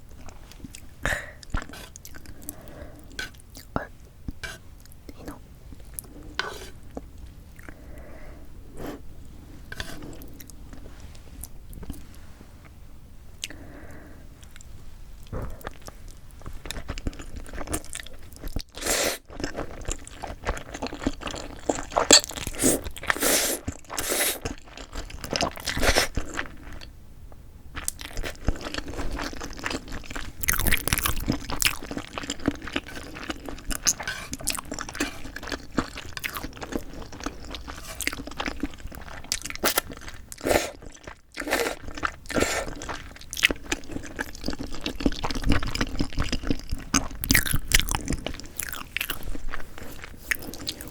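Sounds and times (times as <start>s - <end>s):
crunchy bites and chewing: 27.8s - 38.7s, 40.8s - 50.9s
wet mouth noises: 50.2s - 50.9s.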